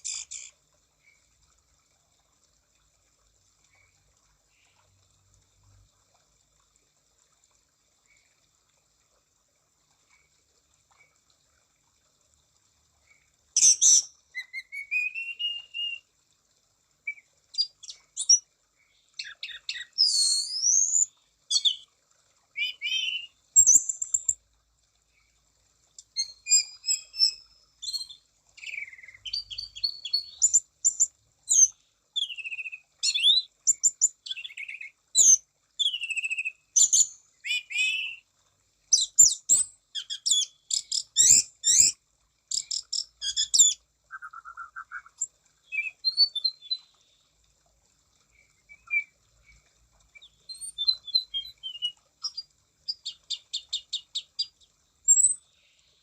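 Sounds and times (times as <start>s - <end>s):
bird song with whistles and chattering: 13.6s - 16.0s, 17.1s - 18.4s, 19.2s - 21.8s, 22.6s - 24.3s, 26.2s - 38.2s, 39.0s - 46.9s, 48.5s - 55.4s.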